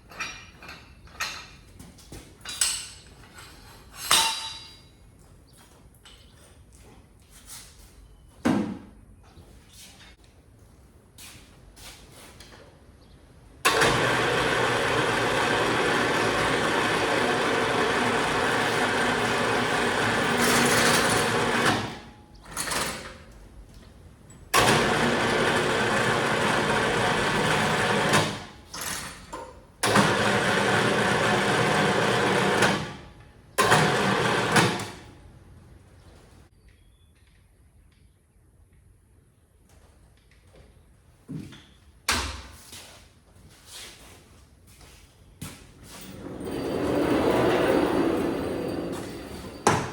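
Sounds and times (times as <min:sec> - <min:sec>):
motor-driven machine running: 0:13.7 - 0:21.8.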